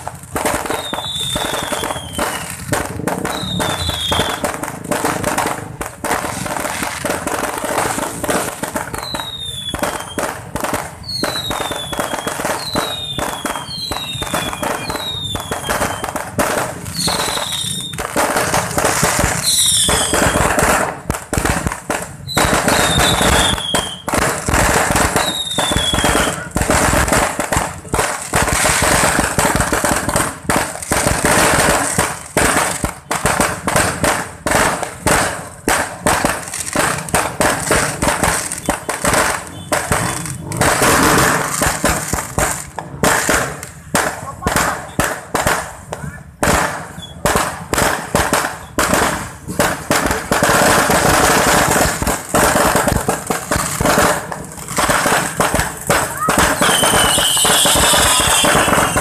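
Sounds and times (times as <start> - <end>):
fireworks bangs and crackles: 0.0 - 59.0
falling firework whistles: 0.3 - 5.6, 6.2 - 27.4, 28.5 - 43.9, 46.5 - 59.0.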